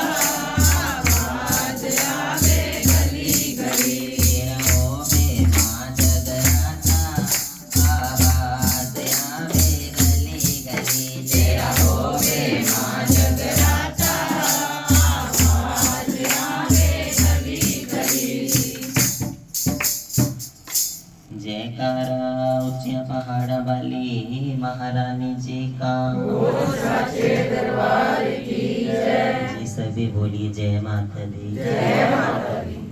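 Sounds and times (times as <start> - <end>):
voices singing: 0.0 - 19.2, 24.0 - 32.9
drum beat: 0.0 - 21.0
jingling percussion: 0.0 - 21.3.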